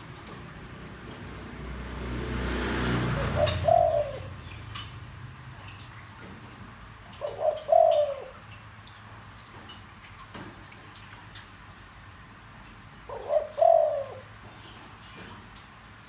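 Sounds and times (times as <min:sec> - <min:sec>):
dove cooing: 0:00.1 - 0:05.8, 0:07.1 - 0:08.4, 0:13.1 - 0:14.4.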